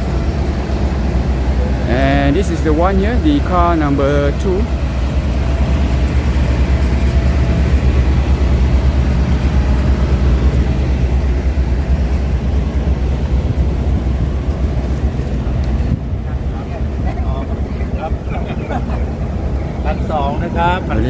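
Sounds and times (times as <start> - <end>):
railcar engines idling: 0.0 - 21.0.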